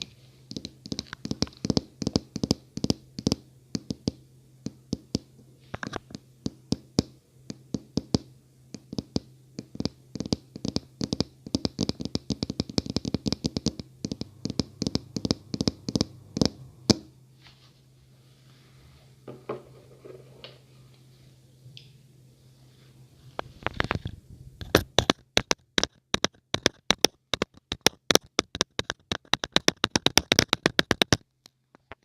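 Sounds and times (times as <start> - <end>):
steady low hum: 0.0 - 26.6
fingernail tapping: 0.5 - 5.3, 6.0 - 17.1, 24.7 - 31.2.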